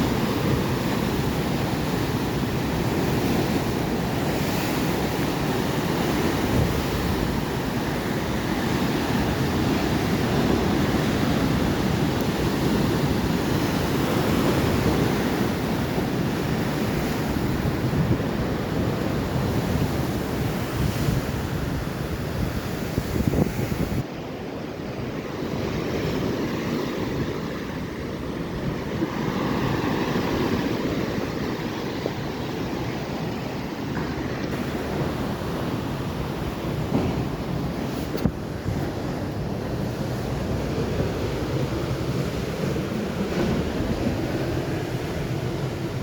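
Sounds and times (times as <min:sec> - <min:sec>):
ocean waves washing in: 0:00.0 - 0:46.0
wind buffeting microphone: 0:00.0 - 0:46.0.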